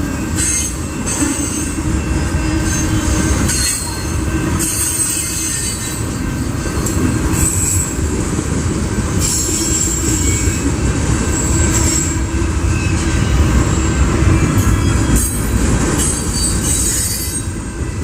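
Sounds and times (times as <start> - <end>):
high wheel squeal: 0.0 - 8.0, 9.2 - 18.0
train wheels rumbling on rail: 0.0 - 18.0.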